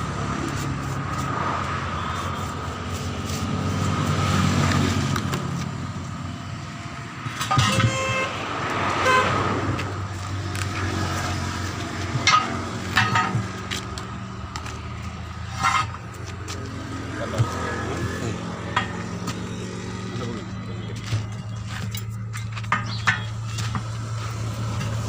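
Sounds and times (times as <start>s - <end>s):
low traffic engine hum: 0.0s - 25.0s
vehicle horn toots: 7.4s - 8.4s, 9.0s - 9.5s.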